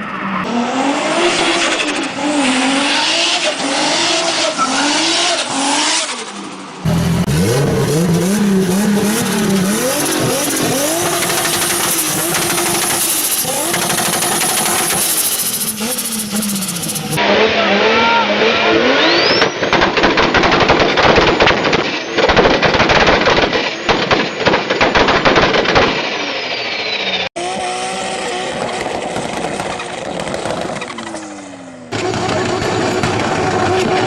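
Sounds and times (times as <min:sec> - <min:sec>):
car engines revving: 0:00.0 - 0:20.0, 0:26.9 - 0:34.0.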